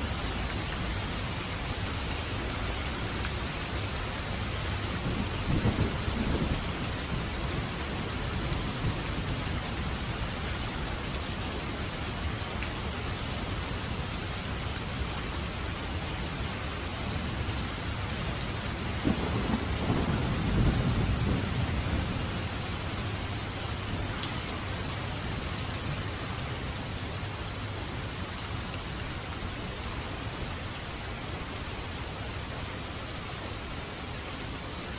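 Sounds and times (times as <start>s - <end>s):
rain falling on a roof: 0.0s - 34.9s
rumbling thunder: 4.9s - 9.4s, 18.9s - 22.6s.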